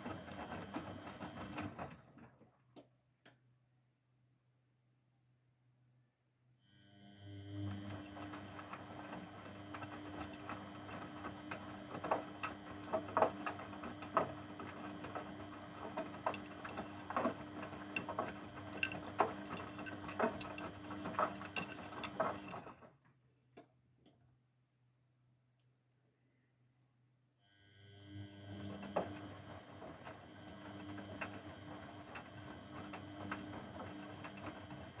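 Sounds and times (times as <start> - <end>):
washing machine motor whining: 0.0 - 2.2, 6.8 - 22.9, 27.7 - 35.0
clicks and knocks: 16.2 - 22.7.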